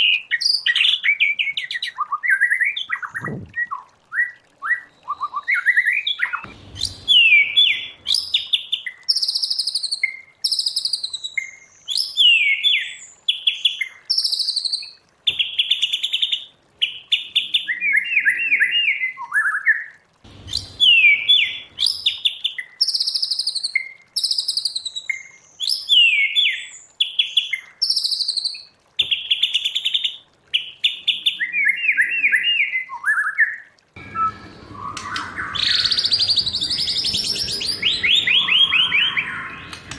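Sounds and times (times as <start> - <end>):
bird singing whistled phrases: 0.0 - 13.1, 17.4 - 19.9, 20.5 - 26.8, 30.8 - 39.9.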